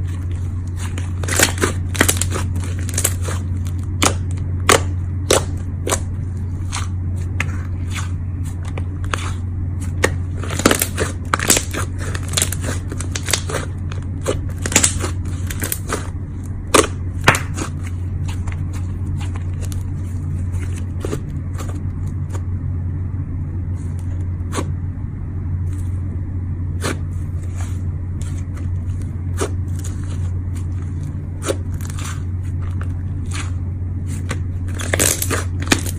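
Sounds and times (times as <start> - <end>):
steady low hum: 0.0 - 35.9
slime crackling and popping: 0.7 - 6.1, 9.0 - 16.1, 34.6 - 35.9.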